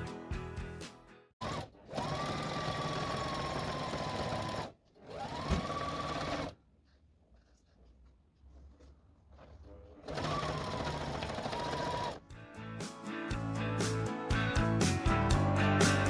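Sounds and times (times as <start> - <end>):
electric sewing machine stitching: 1.4 - 6.6, 10.0 - 12.2.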